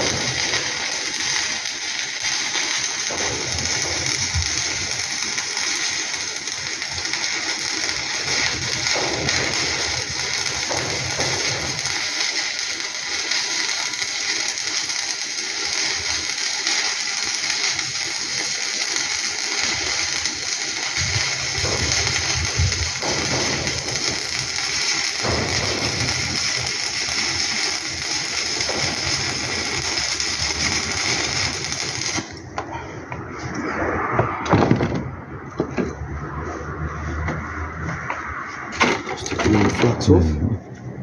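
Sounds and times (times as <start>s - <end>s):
welding arc crackling and hissing: 0.0s - 32.6s.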